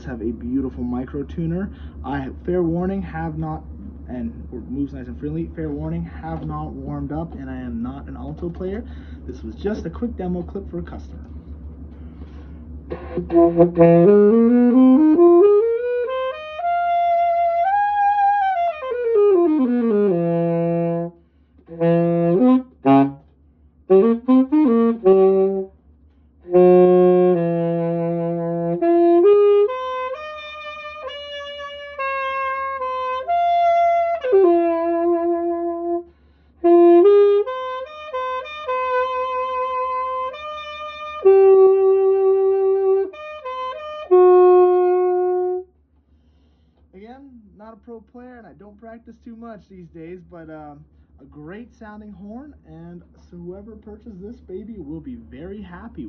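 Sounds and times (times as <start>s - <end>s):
alto saxophone solo: 12.2s - 25.8s, 26.4s - 45.8s.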